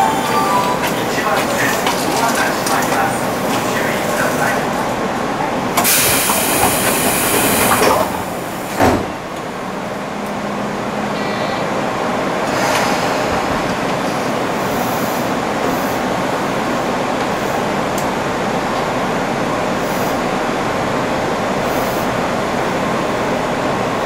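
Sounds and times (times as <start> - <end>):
train steady hum: 0.0 - 24.0
air hissing: 5.8 - 8.8
sliding doors thudding shut: 5.8 - 9.4.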